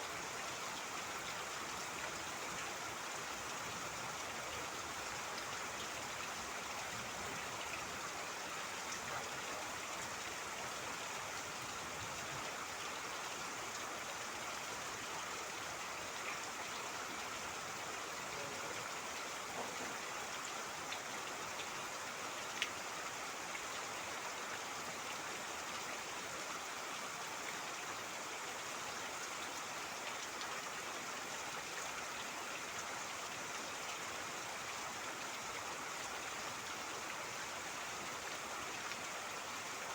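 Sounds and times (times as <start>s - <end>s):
steady rain hiss: 0.0s - 39.9s
rain drop ticks: 22.6s - 22.8s.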